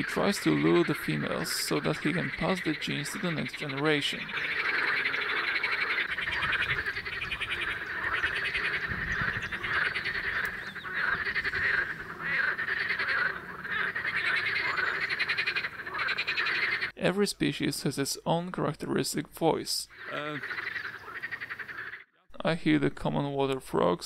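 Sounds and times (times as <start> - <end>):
frogs croaking in chorus: 0.0 - 17.0, 19.9 - 22.1.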